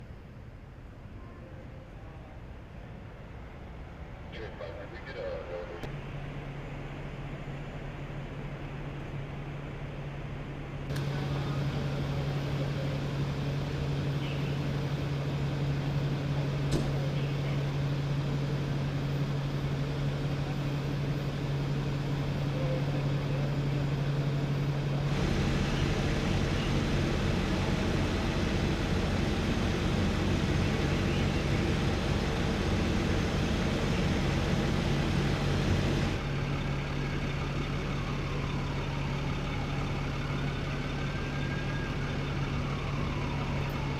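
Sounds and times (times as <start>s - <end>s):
motor vehicle running with low hum: 4.4s - 43.9s.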